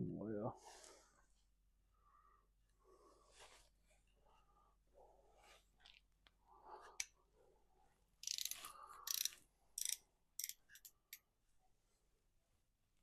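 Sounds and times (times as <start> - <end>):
hand tools clicking and rattling: 8.2 - 11.2.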